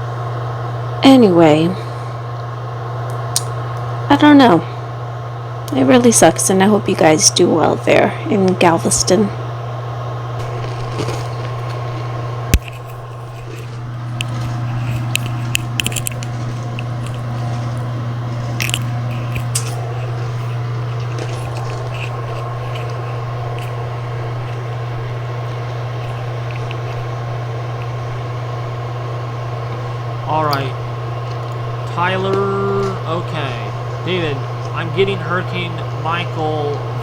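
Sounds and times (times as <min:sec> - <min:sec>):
low hum: 0:00.0 - 0:37.0
short clicks and crunching: 0:02.4 - 0:03.9, 0:10.4 - 0:37.0.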